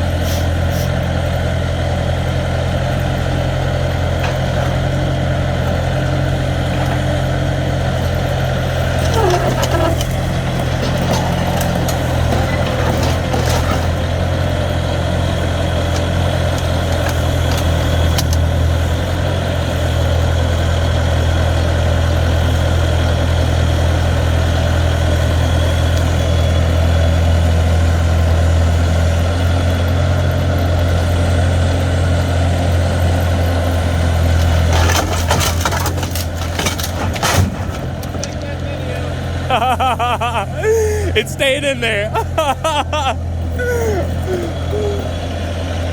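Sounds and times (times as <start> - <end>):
diesel engine running: 0.0 - 45.9
sharp clatter: 8.1 - 14.7, 34.2 - 38.7.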